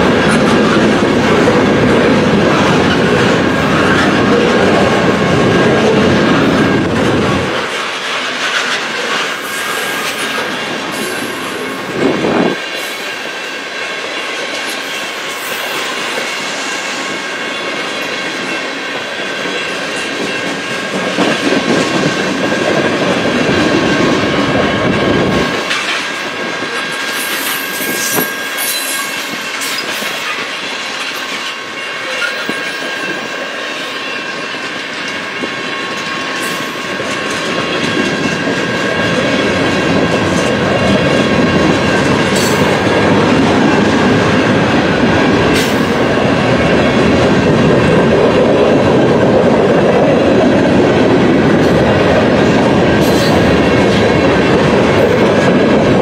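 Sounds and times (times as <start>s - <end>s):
high wheel squeals: 27.0s - 30.2s.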